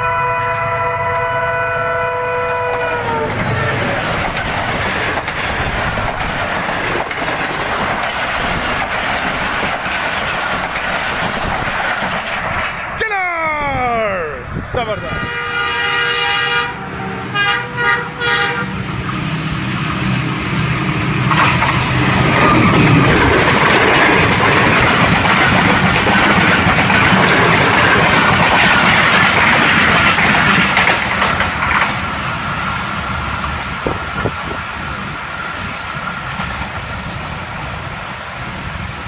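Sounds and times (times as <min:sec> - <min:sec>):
locomotive horn: 0:00.0 - 0:03.9, 0:15.1 - 0:18.8
diesel locomotive engine drone: 0:00.0 - 0:39.0
train coaches rattling on rails: 0:00.0 - 0:39.0.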